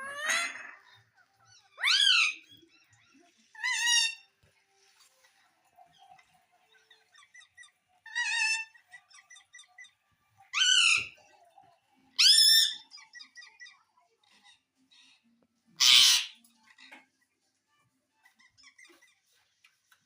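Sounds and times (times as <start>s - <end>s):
parrot squawking: 0.0s - 4.3s, 6.8s - 11.2s, 12.2s - 13.8s, 15.7s - 17.0s, 18.2s - 19.4s
soft parrot chirps: 1.4s - 4.3s, 6.0s - 11.2s, 12.2s - 14.6s, 15.8s - 17.0s, 18.2s - 19.5s.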